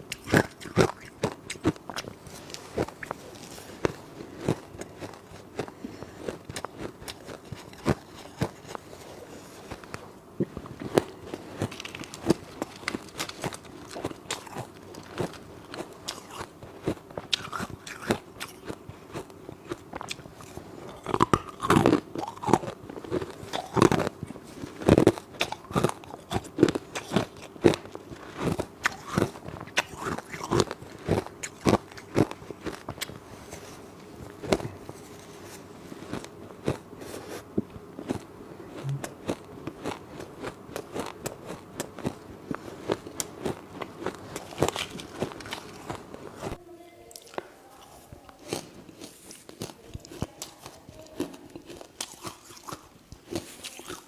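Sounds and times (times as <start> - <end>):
person chewing ice: 0.0 - 54.0.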